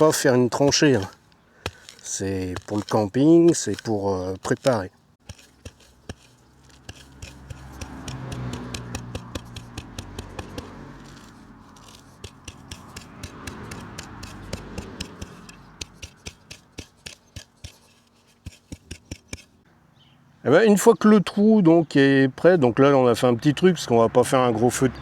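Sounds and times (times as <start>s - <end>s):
shovel scraping soil: 0.0s - 19.6s.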